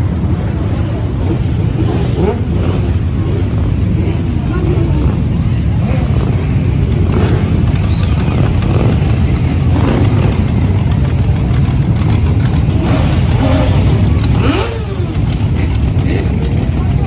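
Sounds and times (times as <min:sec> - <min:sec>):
motorcycle engine revving: 0:00.0 - 0:17.0
motorcycle engines rumbling: 0:00.0 - 0:17.0.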